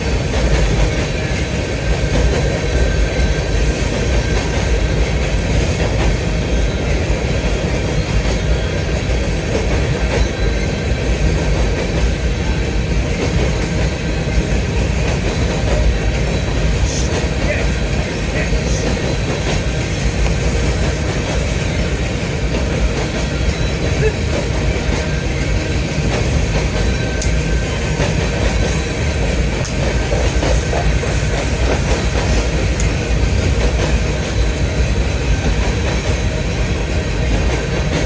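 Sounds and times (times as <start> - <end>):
train cars rolling on rails: 0.0 - 38.0.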